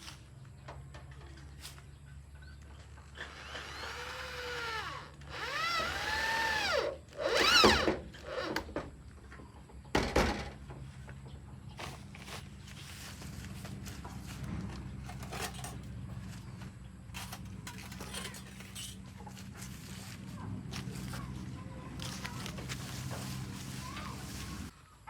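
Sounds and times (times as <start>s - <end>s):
power tool motor whining: 3.2s - 8.8s.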